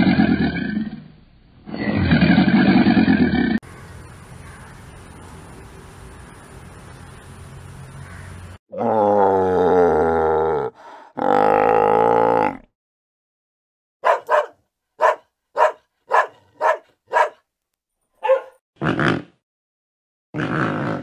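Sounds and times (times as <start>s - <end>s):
dog barking: 14.0s - 17.4s, 18.2s - 18.6s.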